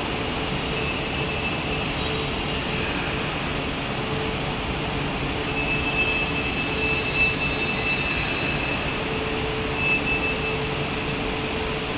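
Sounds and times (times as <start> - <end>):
train braking hiss: 5.2 - 11.2.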